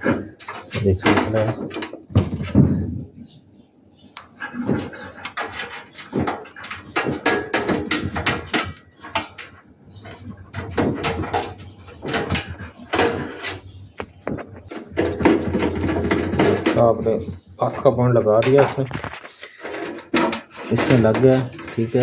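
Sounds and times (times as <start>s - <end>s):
clicks and knocks of handling parts: 4.2s - 17.4s, 18.4s - 22.0s.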